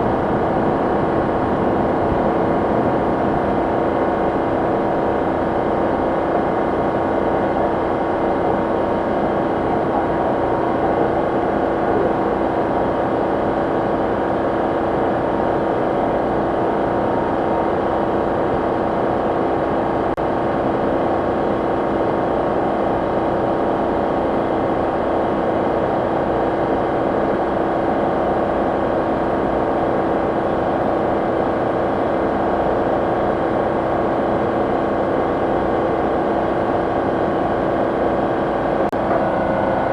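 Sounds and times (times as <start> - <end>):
car engine and air conditioning hum: 0.0 - 14.4.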